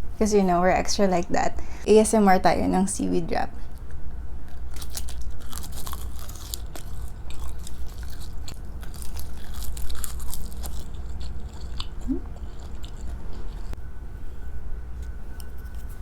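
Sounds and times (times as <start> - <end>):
seaweed sheets crunching when chewed: 3.8 - 13.8.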